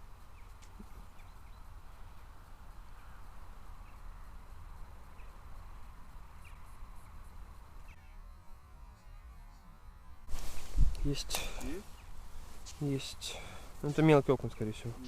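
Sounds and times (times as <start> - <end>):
wind rumbling on microphone: 10.3 - 12.7.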